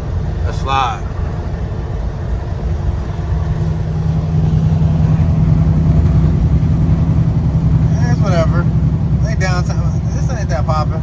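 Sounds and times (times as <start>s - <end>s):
road noise: 0.0s - 11.0s
truck diesel engine droning: 0.0s - 11.0s.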